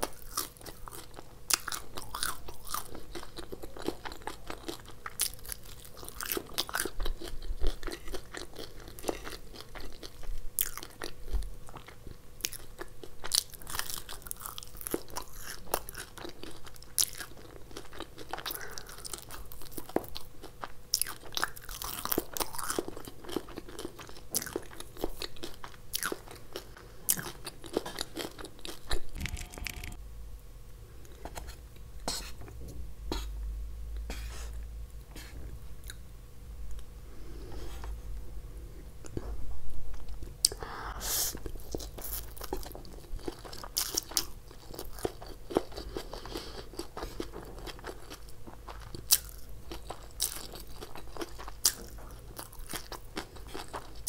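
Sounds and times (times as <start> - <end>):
crunching fried food: 0.0 - 30.0, 41.2 - 54.0.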